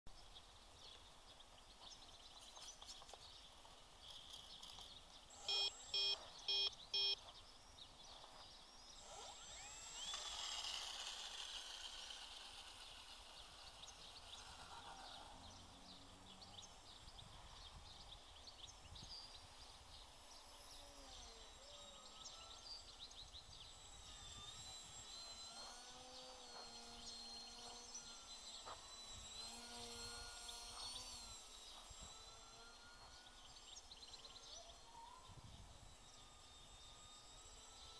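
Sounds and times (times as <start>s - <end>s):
short electronic beeps: 5.3s - 7.2s
bird calls and chirps: 13.3s - 37.9s.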